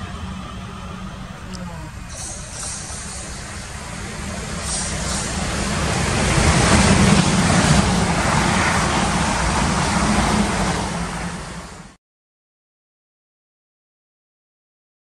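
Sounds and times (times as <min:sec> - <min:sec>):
electric train passing at speed: 0:00.0 - 0:12.0.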